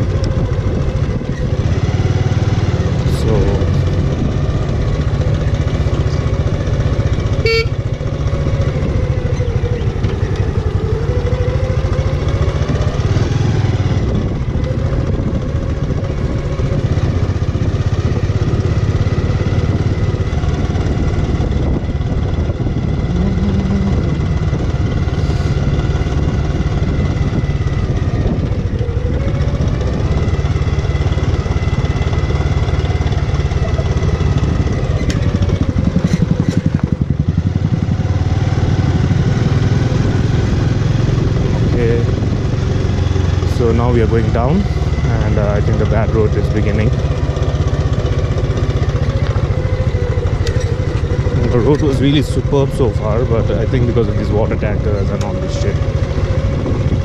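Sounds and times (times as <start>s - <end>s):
motorcycle engine running: 0.0s - 57.0s
horn toot: 7.4s - 7.8s.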